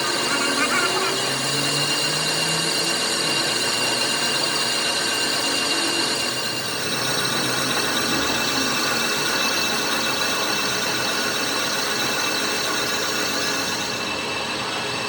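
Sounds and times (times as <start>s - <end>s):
high whining tones: 0.0s - 10.8s
workshop machinery running: 0.0s - 15.0s.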